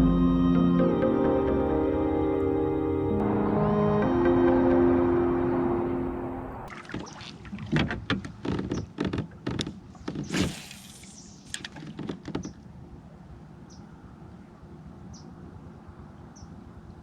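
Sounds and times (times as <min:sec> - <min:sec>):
background music: 0:00.0 - 0:06.7
brief swish: 0:10.2 - 0:11.7.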